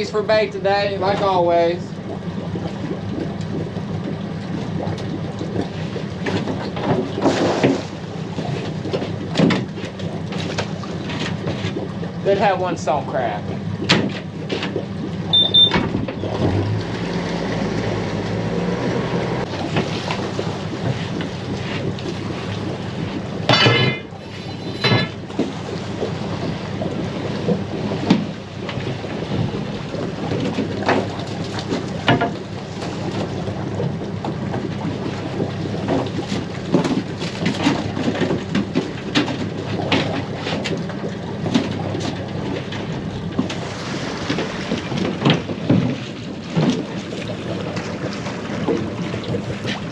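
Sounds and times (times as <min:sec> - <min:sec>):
boat engine running: 0:00.0 - 0:49.9
knocks and clatter: 0:44.4 - 0:49.9.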